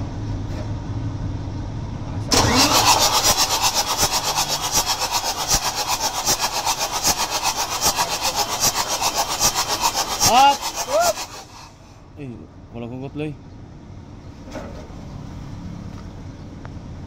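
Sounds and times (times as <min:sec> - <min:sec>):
diesel engine clattering: 0:01.5 - 0:12.4.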